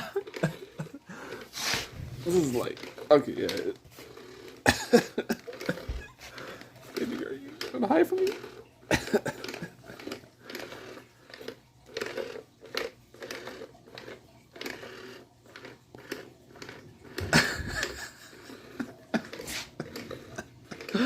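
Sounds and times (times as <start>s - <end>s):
kitten rustling and scratching: 0.4s - 4.6s, 17.7s - 20.8s.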